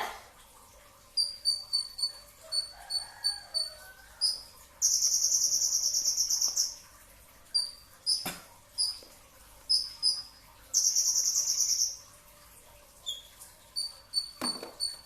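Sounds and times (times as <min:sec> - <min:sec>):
buzzy high bird trill: 0:01.2 - 0:06.8, 0:09.7 - 0:12.1, 0:13.0 - 0:15.0
bird chirping: 0:04.2 - 0:06.8, 0:09.7 - 0:12.0.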